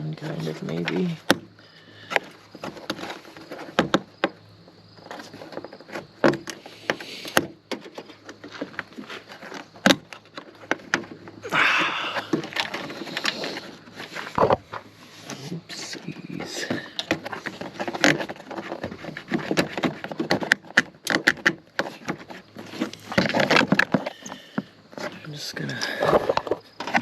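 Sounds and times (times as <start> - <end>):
scraping rustle: 0.0 - 27.0
plastic car parts clicking: 12.1 - 14.8, 15.9 - 25.1.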